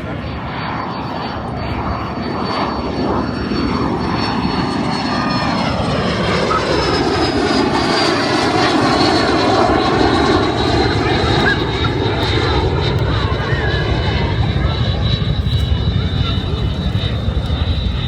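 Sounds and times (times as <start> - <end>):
propeller airplane engine running: 0.0 - 18.0.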